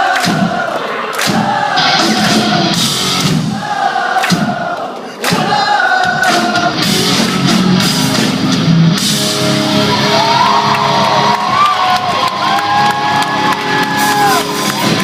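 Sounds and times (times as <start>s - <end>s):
drums: 0.0s - 15.0s
loud electric guitars: 1.2s - 3.6s, 6.1s - 15.0s
pop-punk band playing live: 1.4s - 3.6s, 6.0s - 15.0s.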